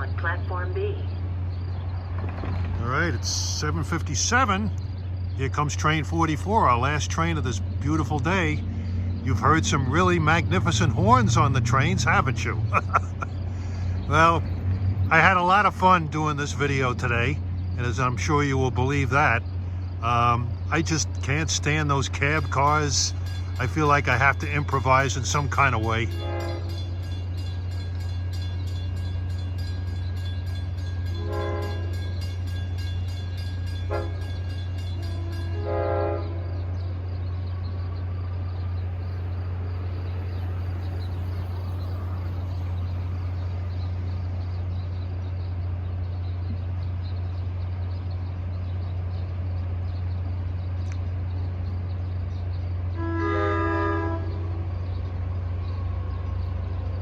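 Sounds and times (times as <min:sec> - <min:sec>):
train engine drone: 0:00.0 - 0:57.0
train horn blasts: 0:26.1 - 0:27.0, 0:31.1 - 0:32.2, 0:33.8 - 0:36.7, 0:52.9 - 0:54.9.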